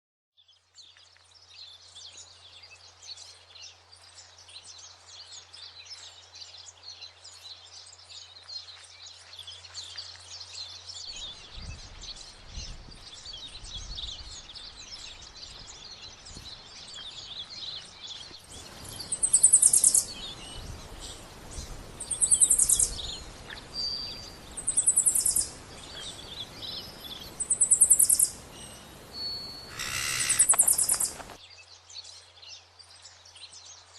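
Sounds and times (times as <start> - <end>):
birds chirping chorus: 0.4 - 33.9
high rapid bird trill: 18.8 - 20.1, 22.0 - 23.0, 24.6 - 25.5, 26.1 - 28.4, 29.2 - 31.4.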